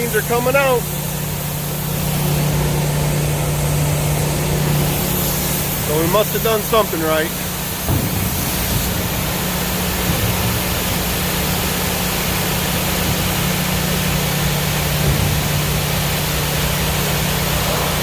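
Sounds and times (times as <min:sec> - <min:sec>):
farm machinery engine hum: 0:00.0 - 0:18.0
rushing hiss: 0:04.8 - 0:18.0.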